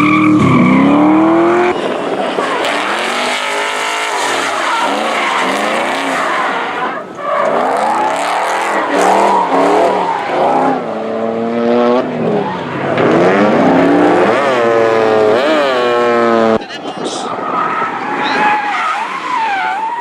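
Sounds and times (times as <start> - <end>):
car engine revving hard: 0.0 - 16.6
tyres squealing: 2.4 - 10.4.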